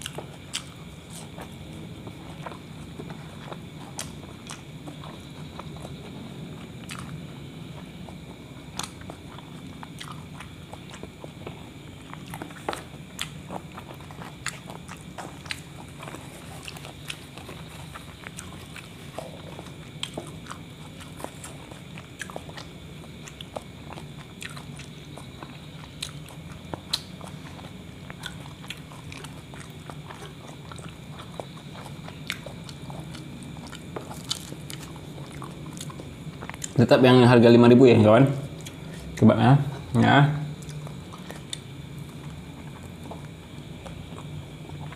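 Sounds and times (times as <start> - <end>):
person chewing food: 0.0 - 36.8, 38.4 - 44.9
steady low hum: 0.0 - 44.9.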